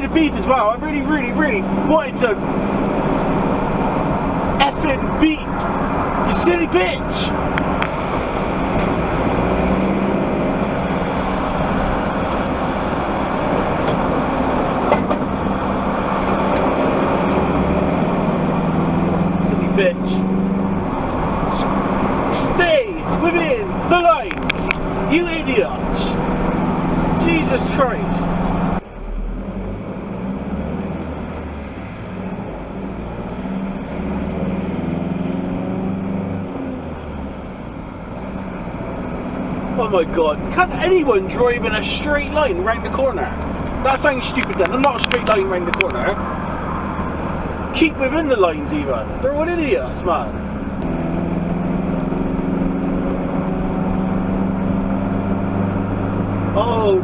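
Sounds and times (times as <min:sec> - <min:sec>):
diesel engine drone: 0:00.0 - 0:57.0
road noise: 0:00.0 - 0:57.0.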